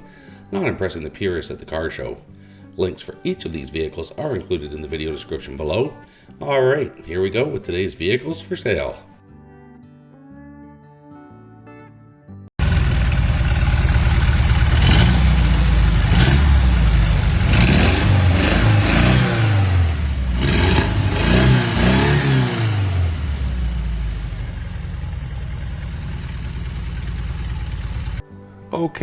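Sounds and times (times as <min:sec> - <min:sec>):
car engine revving and idling: 0:12.6 - 0:28.2.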